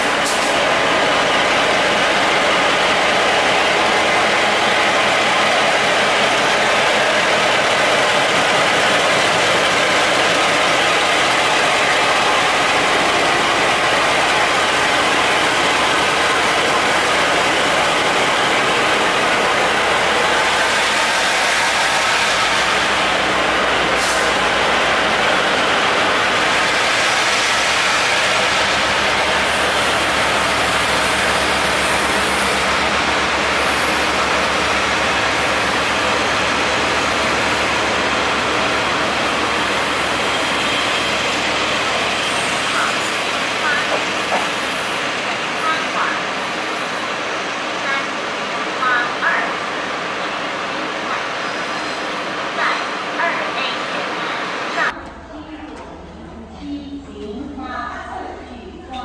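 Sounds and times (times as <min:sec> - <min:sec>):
train rolling past: 0:00.0 - 0:59.0.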